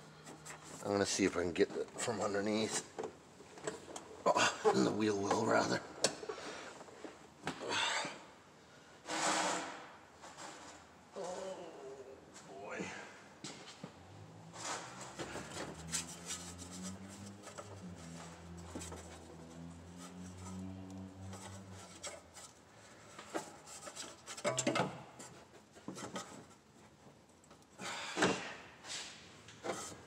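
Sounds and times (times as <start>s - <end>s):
hands and tools scraping and clicking: 0.1s - 4.1s, 14.5s - 27.8s, 29.0s - 30.0s.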